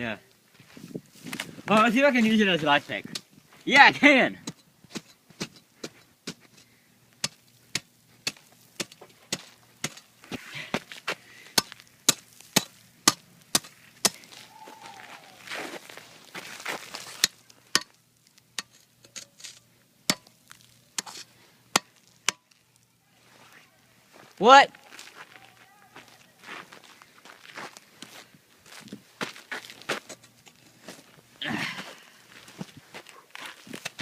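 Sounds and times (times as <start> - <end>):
frozen fish chopping ice: 11.6 - 14.4.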